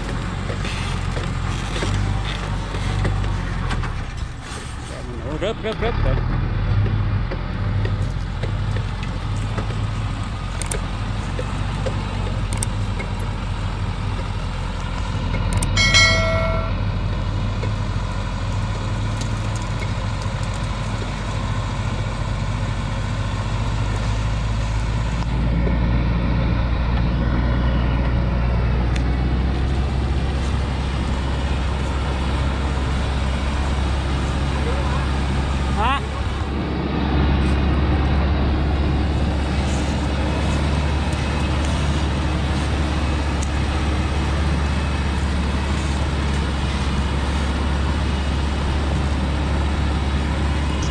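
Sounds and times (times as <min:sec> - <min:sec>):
truck engine running: 0:00.0 - 0:50.9
brief pitched tone: 0:15.8 - 0:16.9.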